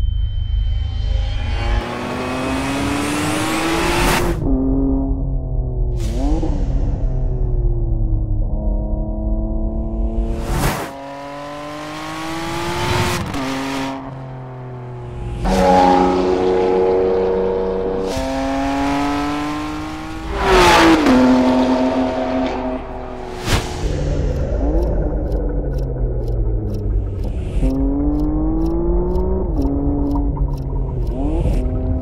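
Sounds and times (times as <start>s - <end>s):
car engine revving hard: 1.8s - 4.7s, 15.4s - 25.8s.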